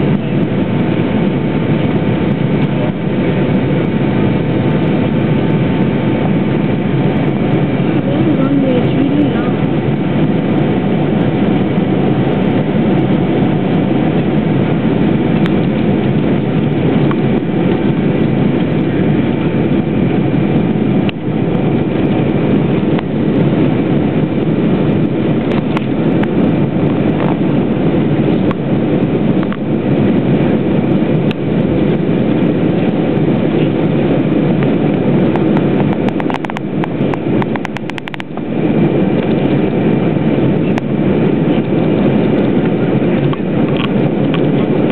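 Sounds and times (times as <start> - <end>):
jet engine noise in cabin: 0.0 - 44.9
crackles: 34.6 - 38.5.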